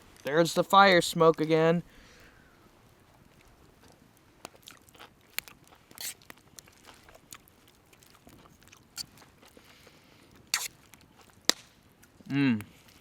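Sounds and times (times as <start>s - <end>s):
person biting and chewing: 4.5s - 9.8s, 10.4s - 12.2s.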